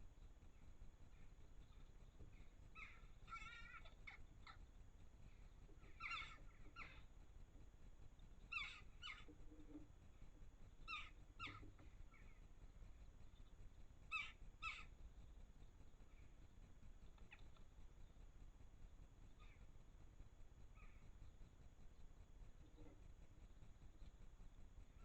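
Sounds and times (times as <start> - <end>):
birds calling harshly: 1.1 - 4.6, 5.5 - 7.1, 8.4 - 9.7, 10.8 - 12.5, 14.1 - 15.0, 19.4 - 19.6.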